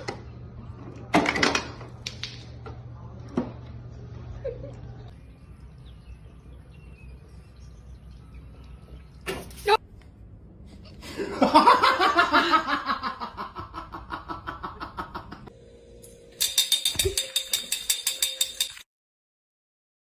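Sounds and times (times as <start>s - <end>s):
person laughing rhythmically: 11.0s - 15.5s.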